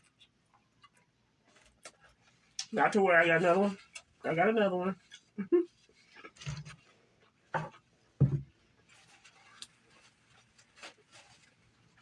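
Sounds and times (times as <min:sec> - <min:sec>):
mouth noises and bumps: 0:07.5 - 0:08.7.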